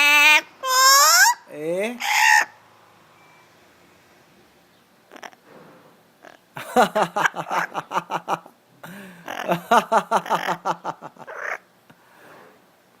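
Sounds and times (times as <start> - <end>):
talking bird calling: 0.0 - 2.6, 9.2 - 9.6, 10.2 - 11.6.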